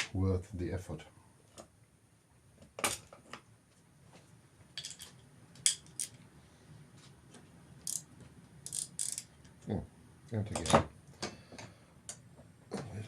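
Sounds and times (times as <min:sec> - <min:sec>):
metal tools clinking: 0:04.8 - 0:06.2.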